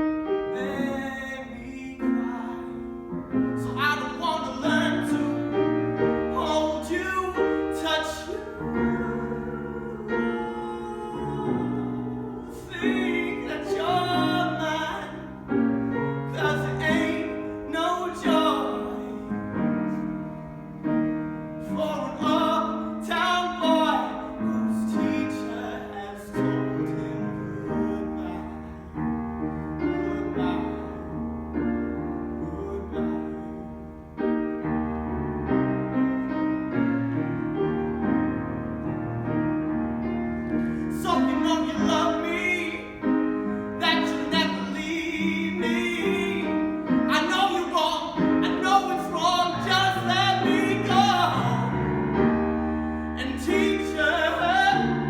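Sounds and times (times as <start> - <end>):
slow piano music: 0.0 - 55.0
person singing: 3.6 - 19.9, 32.2 - 34.0, 40.8 - 55.0.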